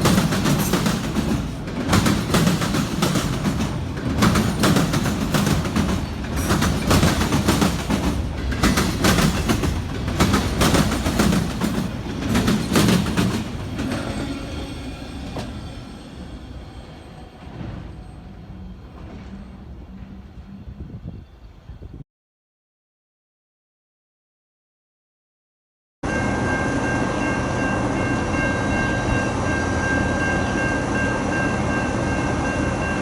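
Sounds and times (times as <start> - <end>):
freight train wheels clickety-clack: 0.0 - 20.6
train low rumble: 0.0 - 22.0, 26.0 - 33.0.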